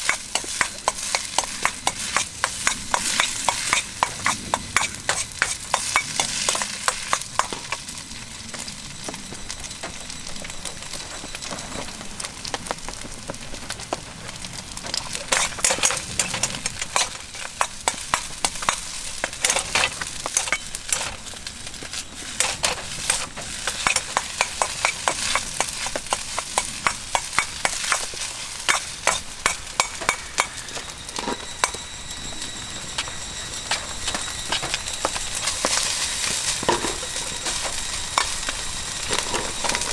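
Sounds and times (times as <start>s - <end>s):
utensil scraping against a pan: 0.0s - 7.9s, 15.0s - 31.5s, 34.6s - 39.9s
rice sizzling in a wok: 0.0s - 39.9s.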